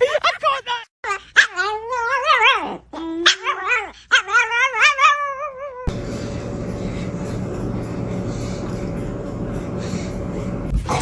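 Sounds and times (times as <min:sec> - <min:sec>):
dog yowling: 0:01.1 - 0:05.9
steady rumbling noise: 0:05.9 - 0:11.0.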